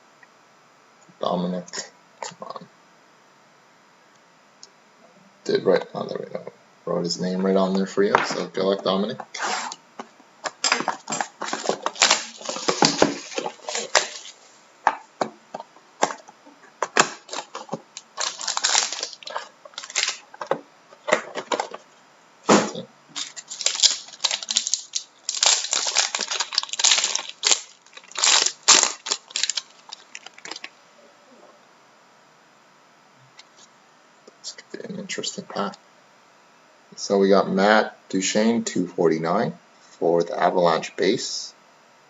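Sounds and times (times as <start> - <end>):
wrapper and cardboard crinkling: 10.4 - 14.5, 16.8 - 21.8, 23.1 - 30.7.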